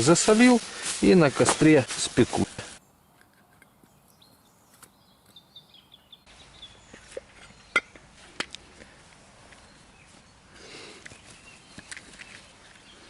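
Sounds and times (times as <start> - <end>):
faint bird chirping: 2.8 - 8.2, 8.9 - 13.0.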